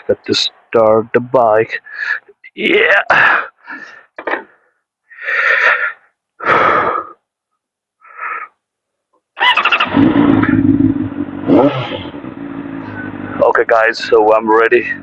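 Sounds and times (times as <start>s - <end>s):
motorcycle engine starting: 9.4s - 13.6s
motorcycle engine revving: 9.4s - 14.2s
motorcycle engine idling: 9.9s - 15.0s.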